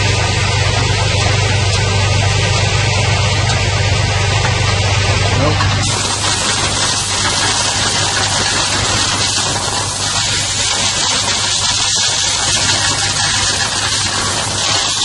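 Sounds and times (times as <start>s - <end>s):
low motor hum: 0.0s - 15.0s
rushing hiss of air: 5.8s - 15.0s.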